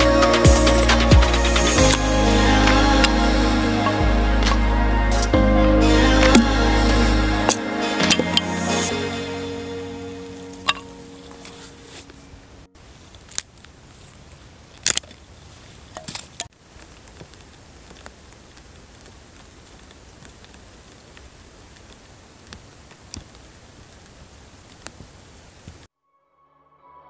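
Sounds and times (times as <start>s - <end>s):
light rain on tent fly: 11.2s - 25.9s.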